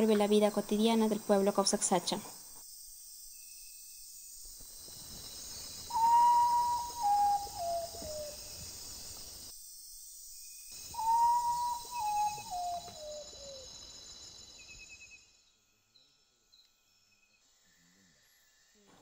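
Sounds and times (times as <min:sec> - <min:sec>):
high insect chorus: 0:00.0 - 0:19.0
bird whistled call: 0:05.8 - 0:08.5, 0:10.9 - 0:13.8.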